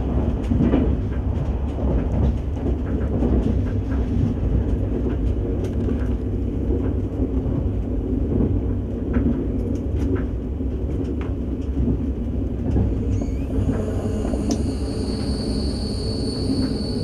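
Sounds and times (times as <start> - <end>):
train cabin rumble: 0.0 - 17.0
faint high steady tone: 13.2 - 17.0.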